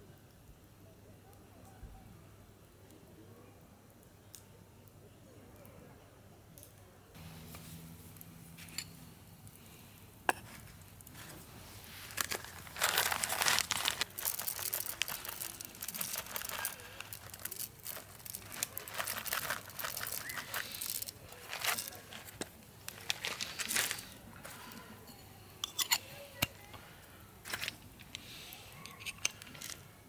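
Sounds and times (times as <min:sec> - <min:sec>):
crinkling and rustling: 0:10.4 - 0:25.2, 0:26.4 - 0:29.9.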